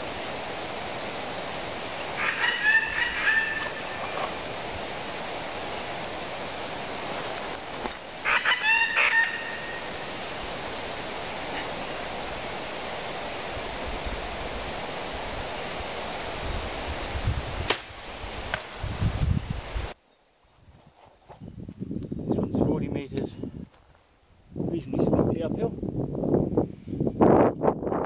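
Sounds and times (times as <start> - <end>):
outdoor air hiss: 0.0 - 20.4
loud bird call: 2.1 - 4.4, 8.2 - 12.0
faint high bird trill: 8.3 - 11.9
bow release snap: 17.6 - 18.7.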